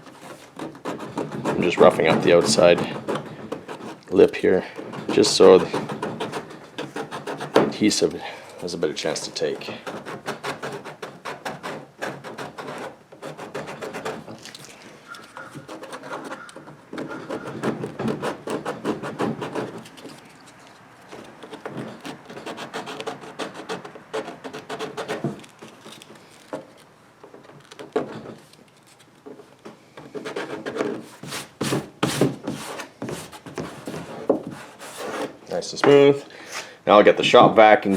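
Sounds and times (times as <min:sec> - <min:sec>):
abrasive rasping on plastic: 0:00.0 - 0:36.0.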